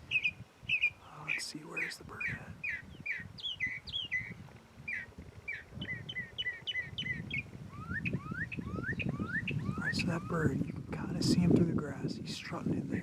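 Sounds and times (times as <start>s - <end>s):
songbirds chirping: 0.0s - 13.0s
rising whistled bird notes: 2.2s - 10.5s.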